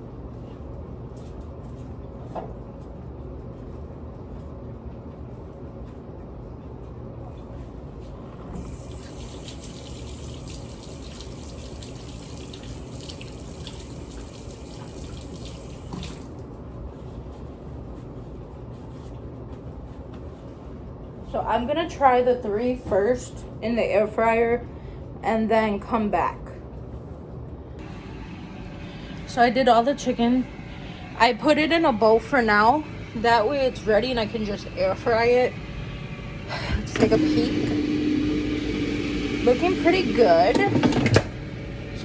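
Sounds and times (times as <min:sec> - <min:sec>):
water running into sink: 0:08.5 - 0:16.4, 0:33.5 - 0:42.0
steady low hum: 0:16.5 - 0:42.0.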